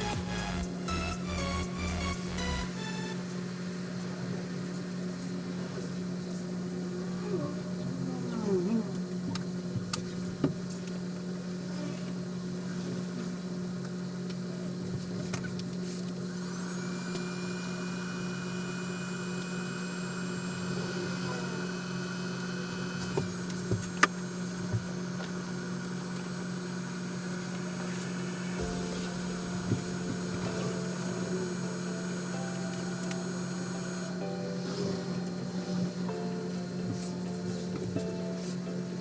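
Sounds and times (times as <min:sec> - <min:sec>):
high whine: 0:00.0 - 0:03.9, 0:16.3 - 0:39.0
low machine hum: 0:00.0 - 0:39.0.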